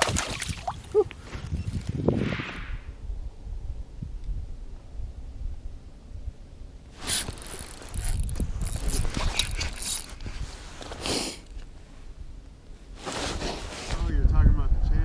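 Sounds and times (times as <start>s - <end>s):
fishing reel ratcheting: 7.0s - 10.3s.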